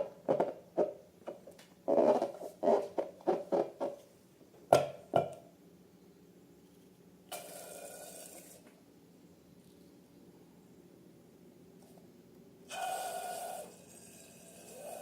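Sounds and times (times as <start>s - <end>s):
hiss: 12.7s - 15.0s.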